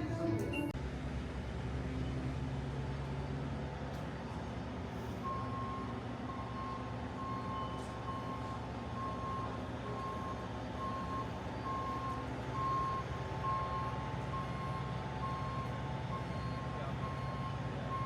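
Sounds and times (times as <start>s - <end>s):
engine running low rumble: 0.0s - 18.0s
vehicle reversing alarm beeping: 5.2s - 18.0s.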